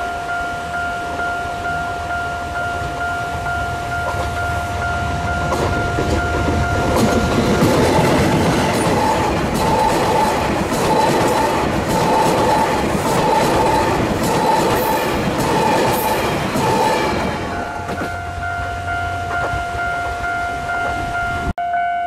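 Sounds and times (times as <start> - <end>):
diesel locomotive passing: 0.0 - 21.5
train coaches rushing: 1.5 - 21.5
wheels clicking over rail joints: 5.4 - 21.2.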